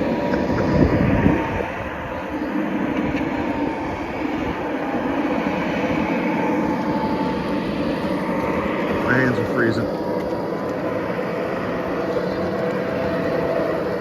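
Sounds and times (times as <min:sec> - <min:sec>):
model train running on track: 0:00.0 - 0:14.0.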